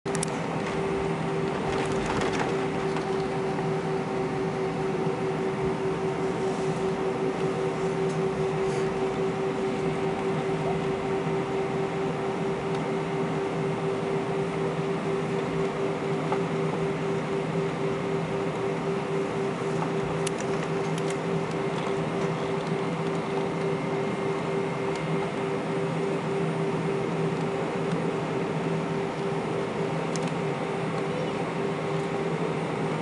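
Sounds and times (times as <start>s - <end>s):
airliner engines humming: 0.1s - 33.0s.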